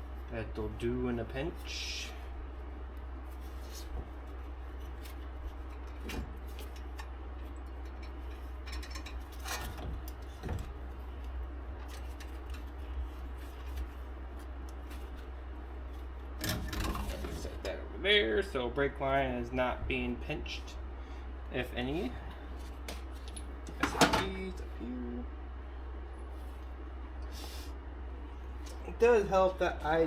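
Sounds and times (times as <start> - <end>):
steady low hum: 0.0 - 30.0
copper wire clicks and rustles: 2.9 - 17.8.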